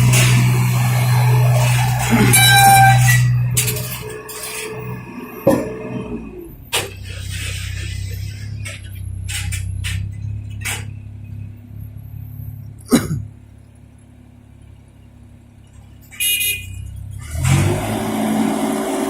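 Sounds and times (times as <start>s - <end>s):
engine revving: 0.0s - 6.6s, 17.2s - 19.0s
excavator engine running: 0.0s - 19.0s.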